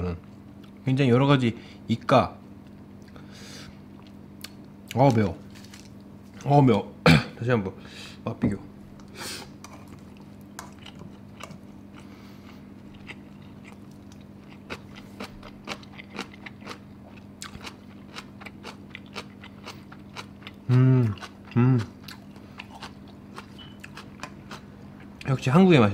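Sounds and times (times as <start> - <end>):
steady low hum: 0.0 - 25.9
person chewing crunchy food: 9.0 - 25.2.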